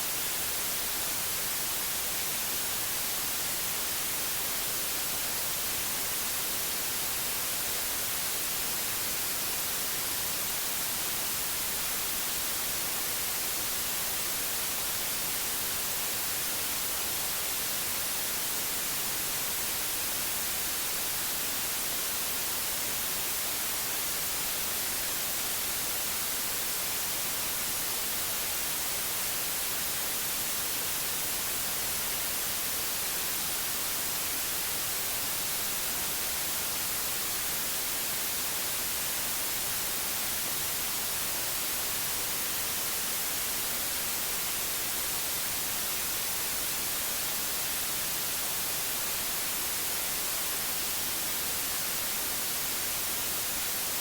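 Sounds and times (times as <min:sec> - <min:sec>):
steady white noise hiss: 0:00.0 - 0:54.0.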